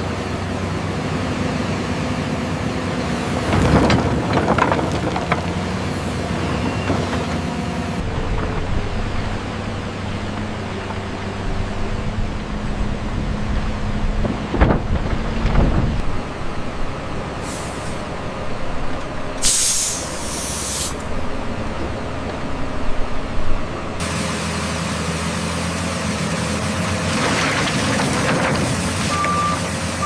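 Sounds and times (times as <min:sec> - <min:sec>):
excavator diesel engine running: 0:00.0 - 0:30.0
hiss of released air: 0:17.4 - 0:18.0, 0:19.4 - 0:21.0.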